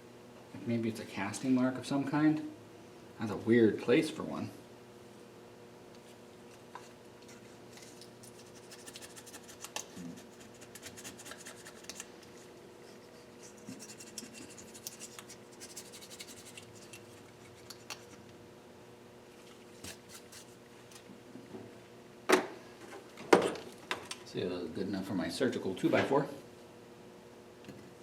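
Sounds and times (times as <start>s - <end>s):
hand scratching and rubbing on metal: 8.2s - 17.8s.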